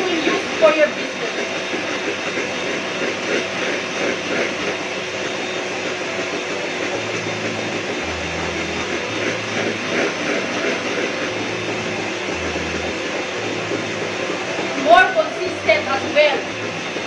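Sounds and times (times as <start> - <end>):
electric mixer whipping cream: 0.0 - 17.0.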